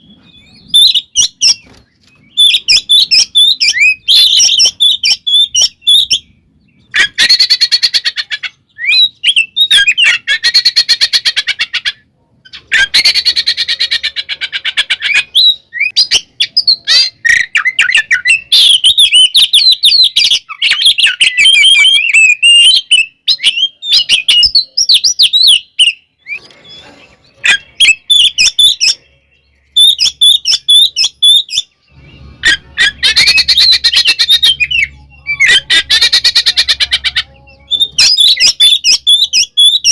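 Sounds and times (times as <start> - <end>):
bird whistled phrases: 8.7 - 11.4, 14.9 - 39.9
bird harsh chattering rattles: 29.8 - 39.9.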